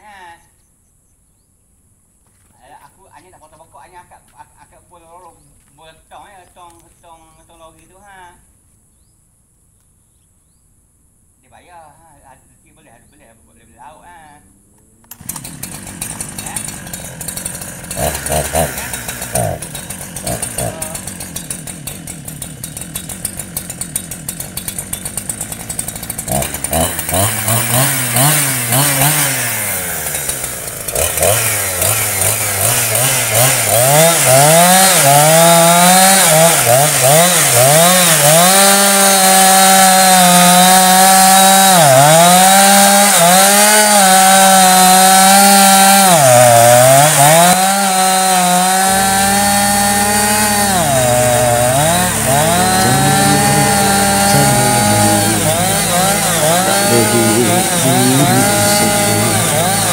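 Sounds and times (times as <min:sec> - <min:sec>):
chainsaw idling and revving: 0:14.8 - 0:59.9
chainsaw cutting wood: 0:15.0 - 0:59.9.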